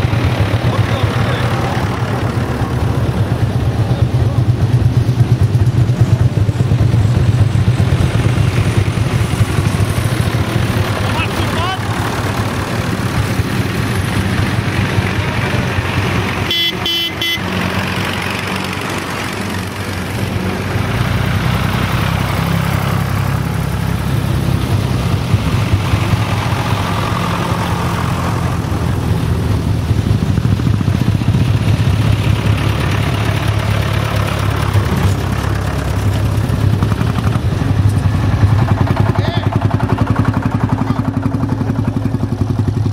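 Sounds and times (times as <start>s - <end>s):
old tractor engines running: 0.0s - 42.9s
short horn toot: 16.5s - 17.4s.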